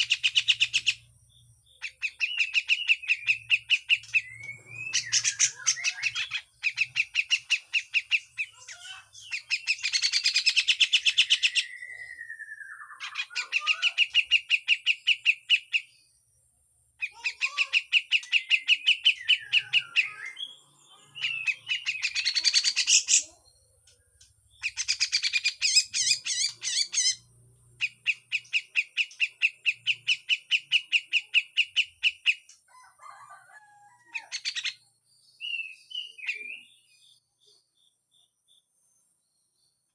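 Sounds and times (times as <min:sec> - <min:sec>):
bird giving harsh rattling calls: 0:00.0 - 0:01.1, 0:01.8 - 0:11.8, 0:21.2 - 0:23.4, 0:24.6 - 0:32.5.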